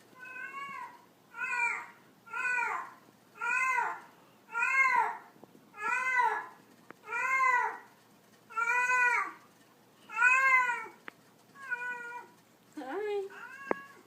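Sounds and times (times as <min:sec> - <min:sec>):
cat meowing: 0:00.2 - 0:05.2, 0:05.8 - 0:07.9, 0:08.5 - 0:09.4, 0:10.1 - 0:11.0, 0:11.6 - 0:12.4, 0:13.3 - 0:14.0.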